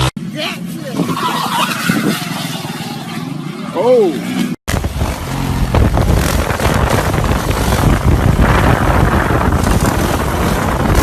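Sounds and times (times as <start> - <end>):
motorcycle engine rumble: 0.0 - 11.0
wind buffeting microphone: 4.7 - 11.0.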